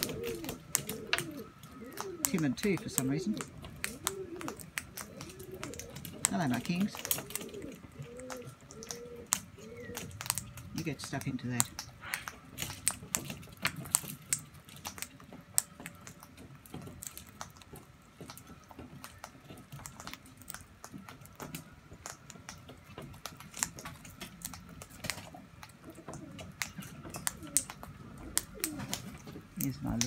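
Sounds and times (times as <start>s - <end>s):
beaks tapping on hard surface: 0.0s - 30.0s.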